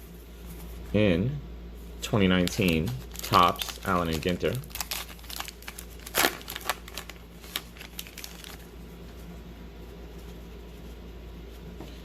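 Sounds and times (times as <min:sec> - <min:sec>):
steady low hum: 0:00.0 - 0:12.0
cards being handled: 0:02.2 - 0:08.7
wrapper crinkling: 0:02.3 - 0:08.7.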